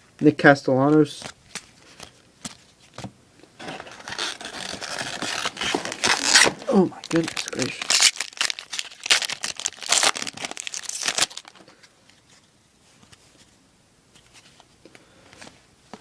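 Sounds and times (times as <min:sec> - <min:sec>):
faint handling of cards: 0:00.8 - 0:16.0
wrapper tearing and crinkling: 0:03.6 - 0:11.6.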